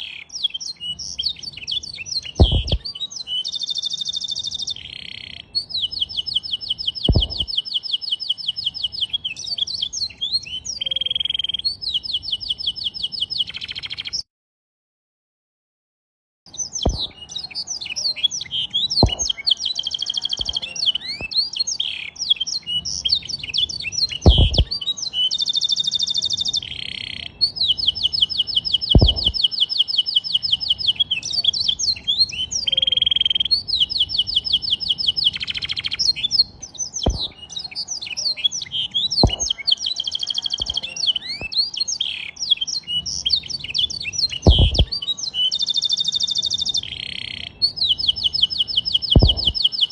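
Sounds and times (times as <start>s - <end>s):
canary singing: 0.0s - 14.2s, 16.5s - 49.9s
short low thumps: 2.4s - 2.8s, 7.1s - 7.5s, 16.9s - 17.1s, 19.0s - 19.3s, 24.2s - 24.7s, 29.0s - 29.4s, 37.1s - 37.3s, 39.2s - 39.5s, 44.5s - 44.9s, 49.2s - 49.6s.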